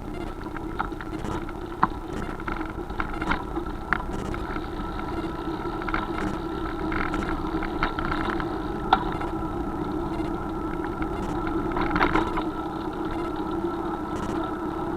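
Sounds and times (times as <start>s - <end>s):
sharp clicks and rattles: 0.1s - 5.3s, 5.9s - 9.3s, 11.1s - 12.4s, 14.1s - 14.5s.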